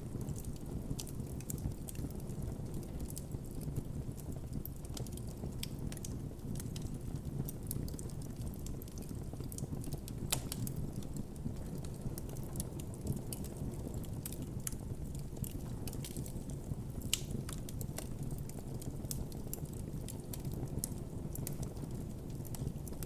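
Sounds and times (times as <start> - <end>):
campfire crackling: 0.0 - 23.0
fire pops: 0.1 - 23.0.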